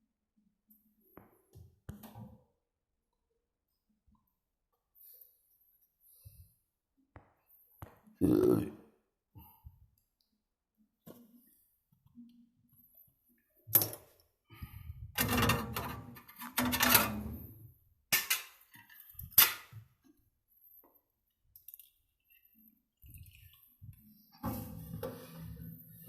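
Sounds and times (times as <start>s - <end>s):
metal tools clacking: 15.2s - 17.4s
rustling and scraping: 24.4s - 26.0s.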